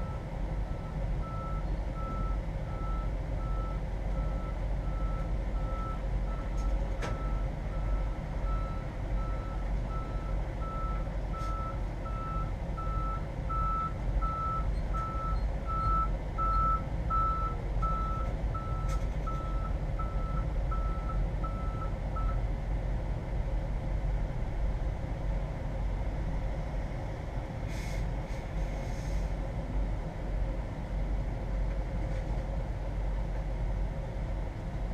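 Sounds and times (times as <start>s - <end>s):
vehicle backup alarm beeping: 0.0s - 22.4s
idling engine rumble: 0.0s - 34.9s.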